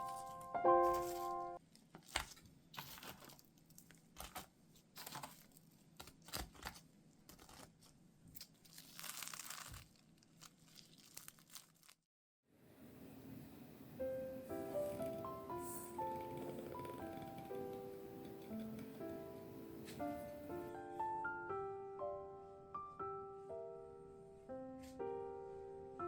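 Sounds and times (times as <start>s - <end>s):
packaging crinkling and tearing: 0.0s - 12.0s.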